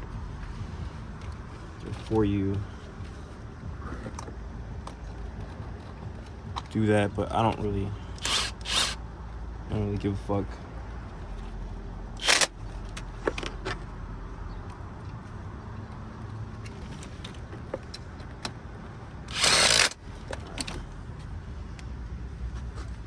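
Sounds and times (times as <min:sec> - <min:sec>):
small metallic clicks and knocks: 0:15.8 - 0:21.8.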